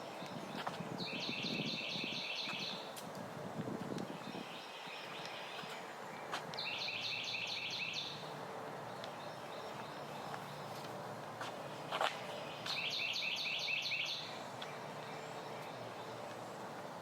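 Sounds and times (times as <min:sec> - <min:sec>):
songbird singing high notes: 0:00.2 - 0:02.9, 0:04.2 - 0:08.2, 0:12.3 - 0:16.2.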